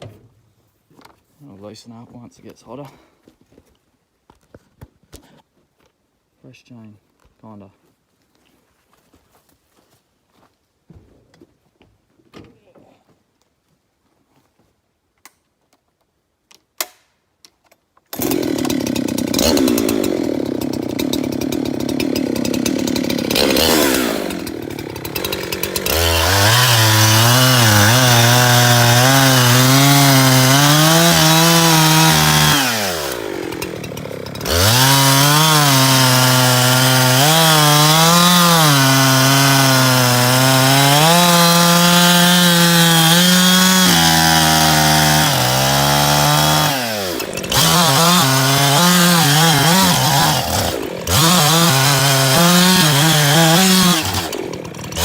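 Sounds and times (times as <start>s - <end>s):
chainsaw sawing wood: 18.1s - 55.0s.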